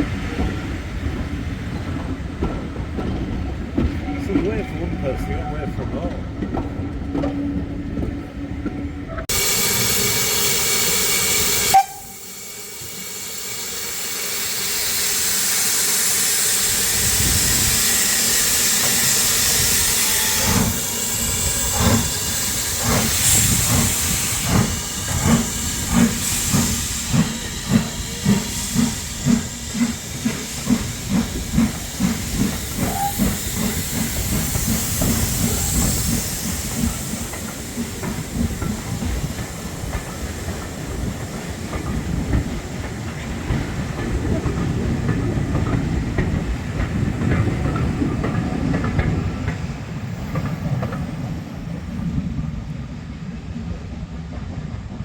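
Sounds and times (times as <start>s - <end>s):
steam locomotive exhaust beats: 0.0s - 55.0s
steam hissing: 9.3s - 52.0s
steam whistle blast: 9.4s - 12.7s, 32.8s - 33.4s.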